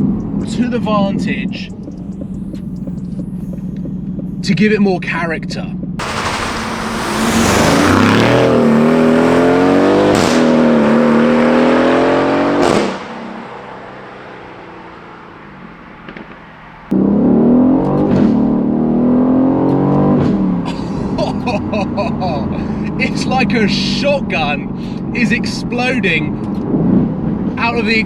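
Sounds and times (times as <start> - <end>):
exhaust crack on upshift: 6.0 - 17.0
car engine accelerating hard: 6.0 - 28.0.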